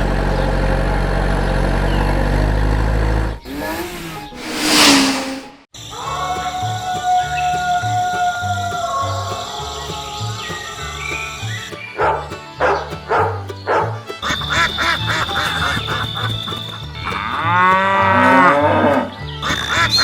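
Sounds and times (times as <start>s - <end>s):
cow mooing: 17.3s - 19.1s.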